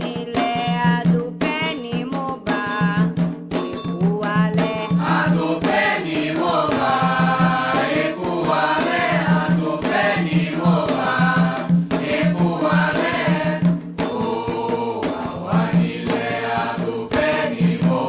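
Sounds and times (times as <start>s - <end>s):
voices singing a chant: 3.8s - 18.0s.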